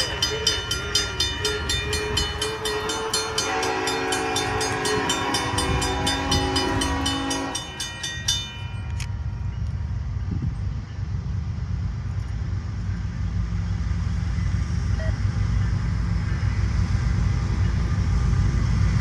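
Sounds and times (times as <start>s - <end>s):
locomotive horn chord: 0.0s - 9.1s
crossing bell ringing: 0.0s - 11.1s
freight train rumbling: 0.0s - 19.0s.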